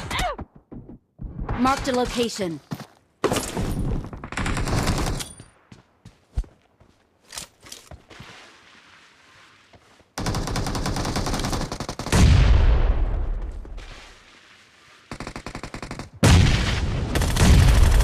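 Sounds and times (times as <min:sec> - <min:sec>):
video game automatic gunfire: 0:17.1 - 0:18.0.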